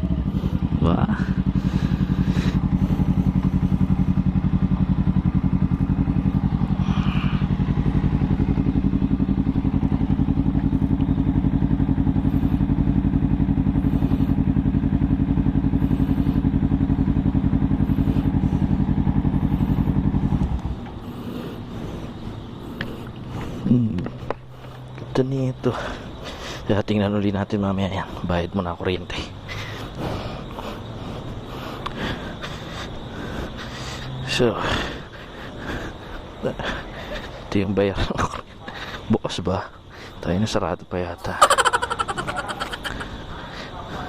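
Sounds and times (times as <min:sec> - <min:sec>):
motorcycle engine idling: 0:00.0 - 0:26.3, 0:41.3 - 0:44.0.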